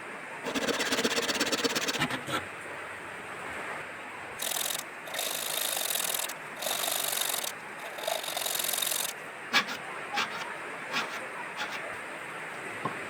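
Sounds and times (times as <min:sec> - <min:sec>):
hand tool working wood: 0:00.5 - 0:02.4, 0:04.4 - 0:12.0.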